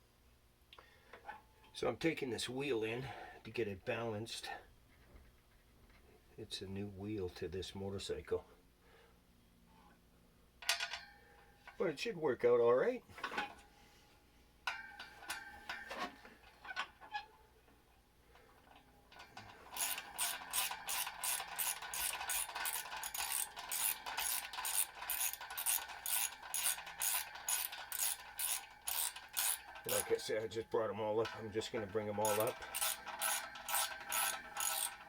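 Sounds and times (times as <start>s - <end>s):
ratchet wrench clicking: 19.8s - 30.2s, 32.2s - 35.0s
metallic clink: 32.2s - 35.0s.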